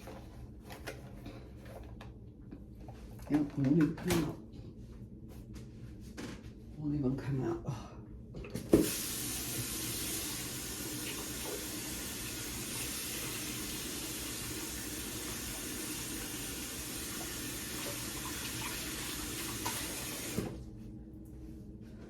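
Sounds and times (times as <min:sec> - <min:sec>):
faucet running into sink: 0:08.7 - 0:20.6.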